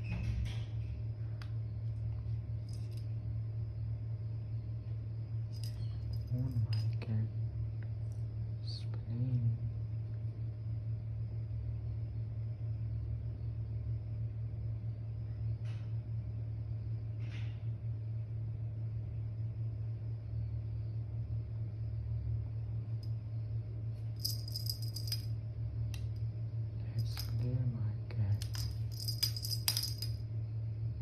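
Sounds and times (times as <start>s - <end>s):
steady low hum: 0.0s - 31.0s
cat toy jingling rattle: 24.2s - 25.3s, 28.4s - 30.2s.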